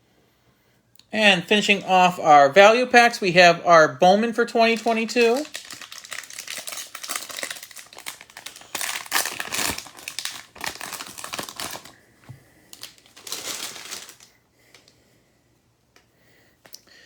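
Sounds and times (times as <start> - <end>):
plastic wrappers crinkling and tearing: 4.6 - 12.0, 12.7 - 14.9.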